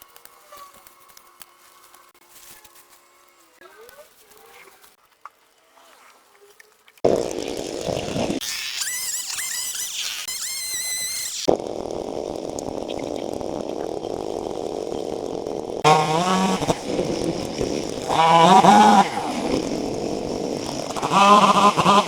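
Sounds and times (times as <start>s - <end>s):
chainsaw revving: 7.0s - 22.0s.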